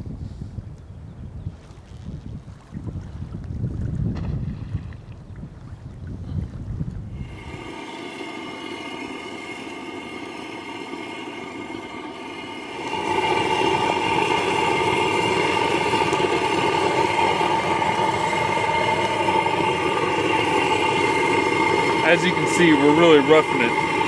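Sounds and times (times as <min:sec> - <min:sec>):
engine humming steadily: 0:07.2 - 0:24.0.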